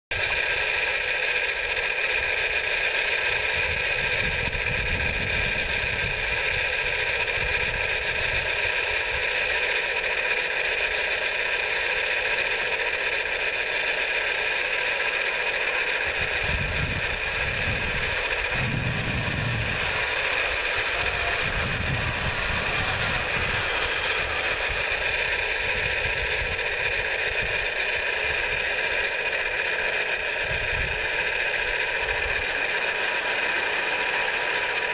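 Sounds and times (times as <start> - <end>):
model machinery motor whine: 0.1 - 34.9
low rumbles: 16.0 - 34.9.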